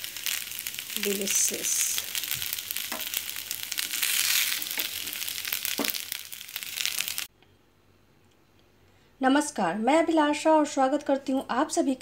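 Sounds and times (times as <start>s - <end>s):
oil sizzling and crackling: 0.0s - 7.3s.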